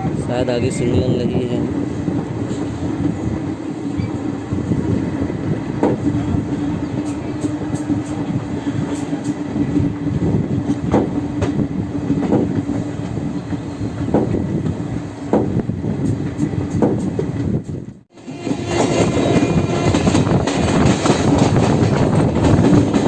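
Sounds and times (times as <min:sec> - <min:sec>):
train wheels clicking over rail joints: 0:06.9 - 0:23.0.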